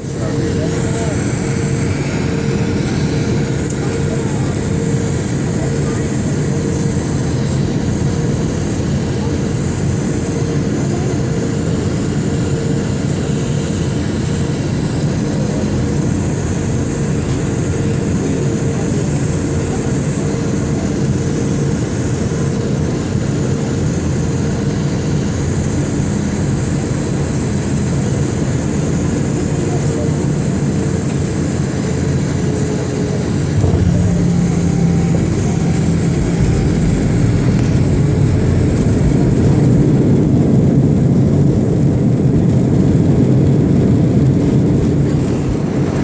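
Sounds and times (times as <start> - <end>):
jet engine cabin hum: 0.0 - 46.0
faint high whine: 32.1 - 41.8
rushing air: 33.2 - 42.9.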